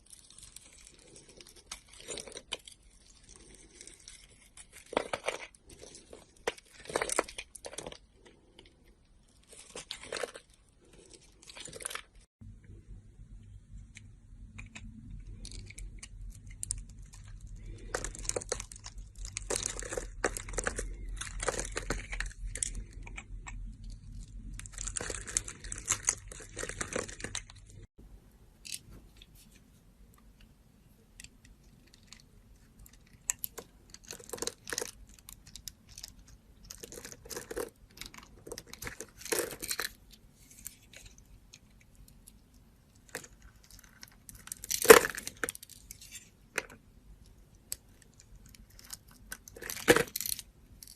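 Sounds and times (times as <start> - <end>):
low hum: 12.4 - 28.6.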